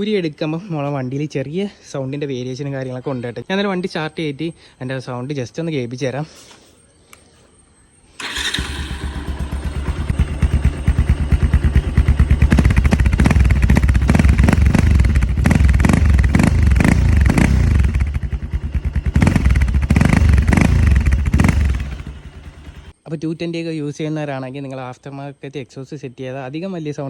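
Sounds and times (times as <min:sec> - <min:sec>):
motorcycle engine revving: 0:08.2 - 0:23.0.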